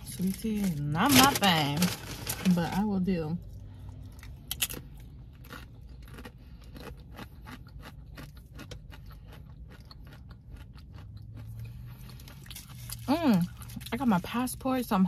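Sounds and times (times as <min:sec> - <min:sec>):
person chewing food: 0:03.4 - 0:13.9.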